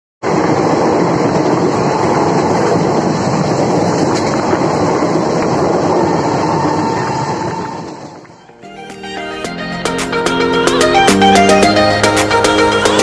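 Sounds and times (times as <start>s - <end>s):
train wheels on rails: 0.2s - 8.5s
rushing air noise: 0.2s - 13.0s.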